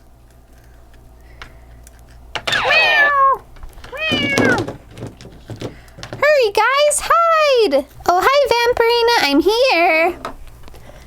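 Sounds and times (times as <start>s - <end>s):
cat meowing: 2.5s - 4.7s.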